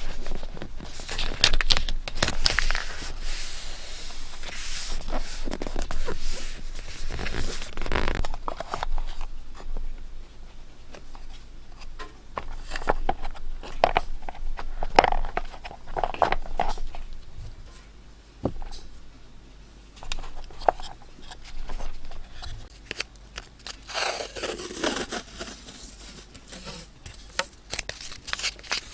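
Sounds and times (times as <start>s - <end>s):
paper crinkling: 0.0s - 10.0s, 20.0s - 28.9s
paper rustling: 0.0s - 10.0s, 20.0s - 28.9s.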